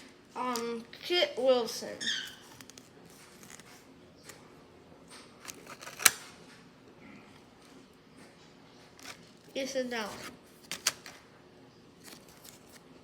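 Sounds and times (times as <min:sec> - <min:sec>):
cards flipped and rustling: 0:02.4 - 0:04.4, 0:05.4 - 0:06.3, 0:09.0 - 0:11.2, 0:12.0 - 0:13.0
card snapping: 0:05.4 - 0:06.3.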